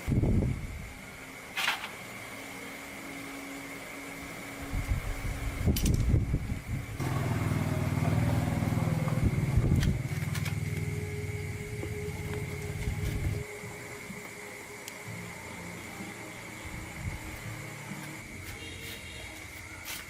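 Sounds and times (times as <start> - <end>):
motorbike engine sputtering and idling: 7.0 - 13.4.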